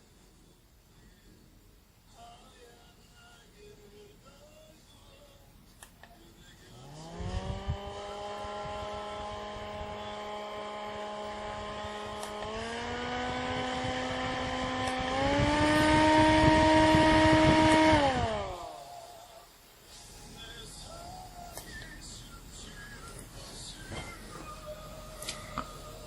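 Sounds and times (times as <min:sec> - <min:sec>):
portable fan motor whine: 0:06.0 - 0:26.0.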